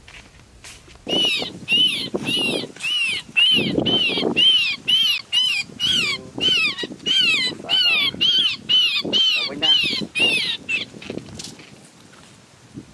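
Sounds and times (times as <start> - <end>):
small bird distress calls: 1.1 - 11.2.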